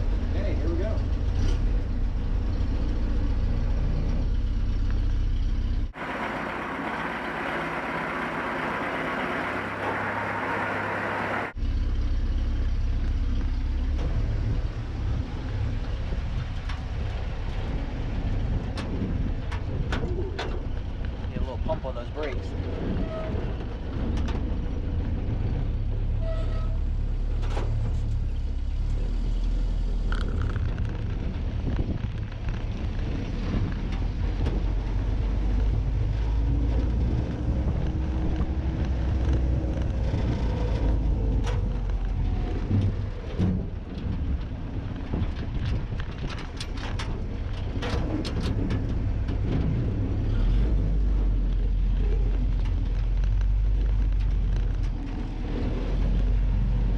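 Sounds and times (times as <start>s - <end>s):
car engine running under load: 0.0s - 56.9s
road noise: 0.0s - 56.9s
sharp knocks and rattles: 36.5s - 50.3s.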